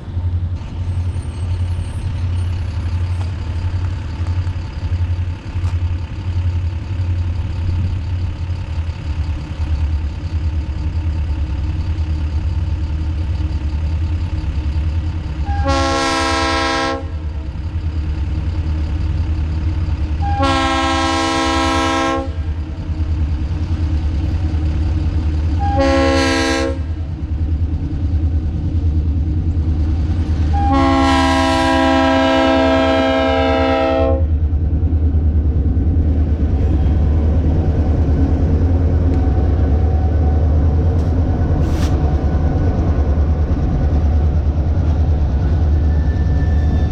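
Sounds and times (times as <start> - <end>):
low rumble of train: 0.0 - 46.9
locomotive air horn blasts: 15.4 - 17.2, 20.2 - 22.5, 25.6 - 27.0, 30.5 - 34.3.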